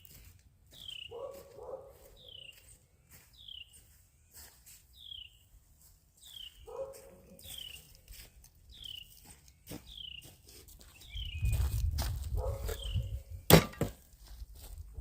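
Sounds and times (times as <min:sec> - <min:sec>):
bird chirping: 0:00.7 - 0:11.9, 0:12.7 - 0:13.4
dog barking: 0:01.1 - 0:02.4, 0:06.6 - 0:07.5, 0:12.4 - 0:13.0.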